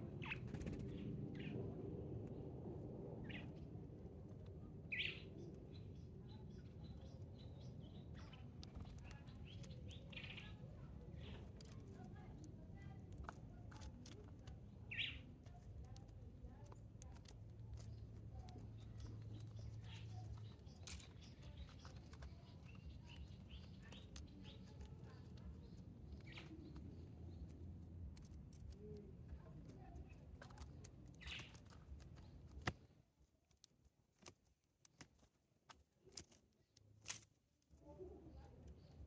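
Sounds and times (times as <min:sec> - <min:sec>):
low background rumble: 0:00.0 - 0:33.4
small birds chirping: 0:00.0 - 0:39.0
light clicks and taps: 0:08.1 - 0:37.8.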